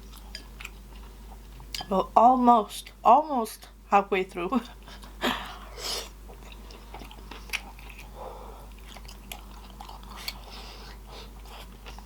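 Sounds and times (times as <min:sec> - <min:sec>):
close chewing with mouth clicks: 0:00.0 - 0:01.9, 0:06.0 - 0:12.0.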